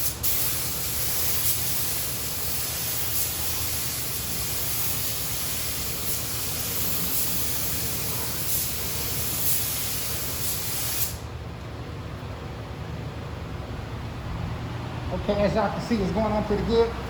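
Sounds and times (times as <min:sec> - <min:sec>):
paint spray gun hissing: 0:00.0 - 0:11.3.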